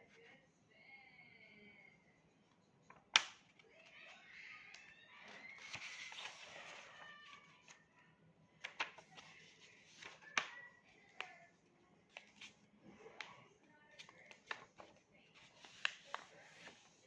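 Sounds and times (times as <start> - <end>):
paper fold crackles: 5.2 - 7.8, 8.6 - 11.4, 12.1 - 12.6, 13.9 - 17.0
paper rustling: 5.2 - 7.8, 8.6 - 11.4, 12.1 - 17.0.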